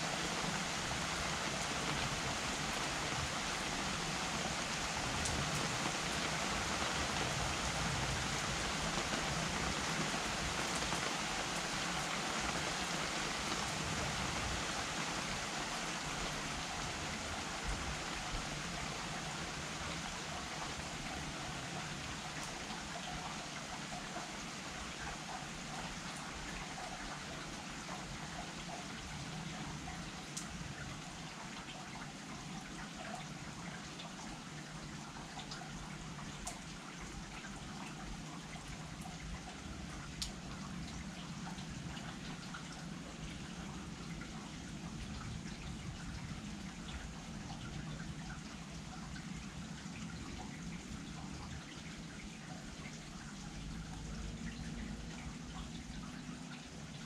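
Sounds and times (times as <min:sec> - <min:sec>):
steady rain falling: 0:00.0 - 0:57.0
sharp drips: 0:14.8 - 0:57.0.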